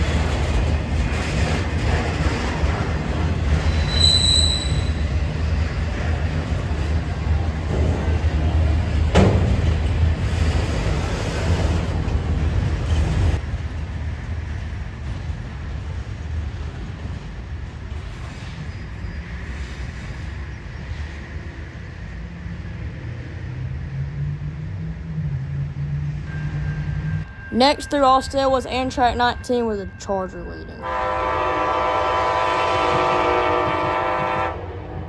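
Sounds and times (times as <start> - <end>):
locomotive engine drone: 0.0 - 18.0
train wheel and rail noise: 0.0 - 35.0.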